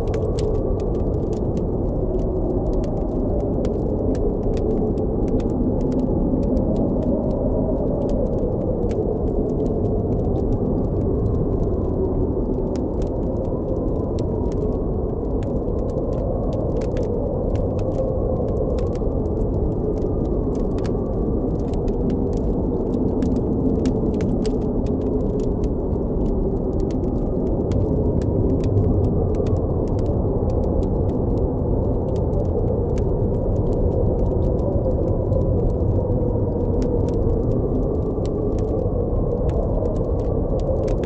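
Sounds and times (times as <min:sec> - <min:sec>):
blizzard wind howling: 0:00.0 - 0:41.0
campfire crackling and popping: 0:00.0 - 0:41.0.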